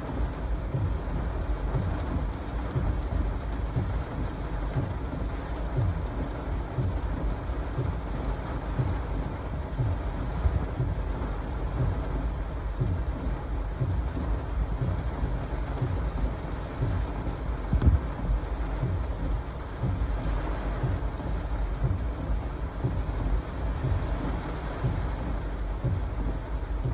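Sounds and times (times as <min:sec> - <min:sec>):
heavy rain falling: 0:00.0 - 0:26.9
wind buffeting microphone: 0:17.7 - 0:18.1.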